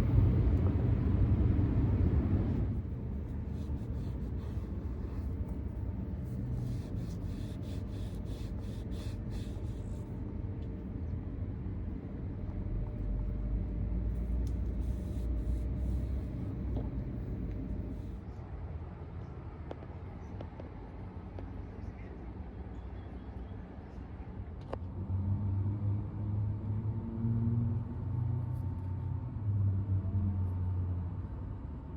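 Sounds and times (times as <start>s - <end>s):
low vehicle rumble: 0.0s - 18.2s
faint steady hum: 0.0s - 31.9s.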